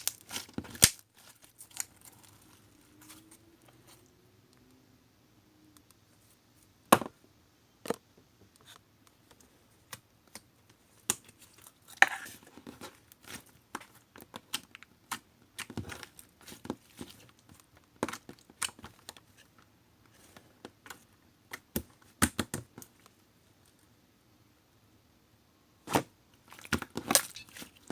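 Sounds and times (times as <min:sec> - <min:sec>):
slime tearing: 0:00.0 - 0:03.5.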